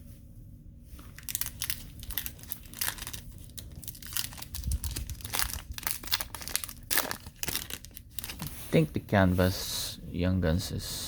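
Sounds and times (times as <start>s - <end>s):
plastic wrapper crinkling and tearing: 1.0s - 8.6s.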